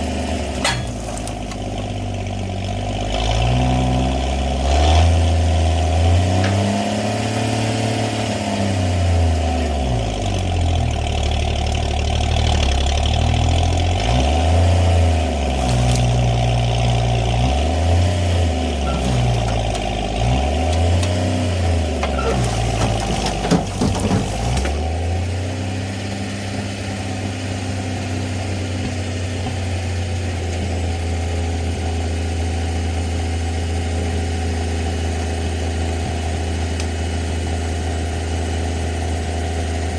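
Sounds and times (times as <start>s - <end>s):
truck engine revving and idling: 0.0s - 39.9s
clatter of knocks: 22.0s - 24.8s.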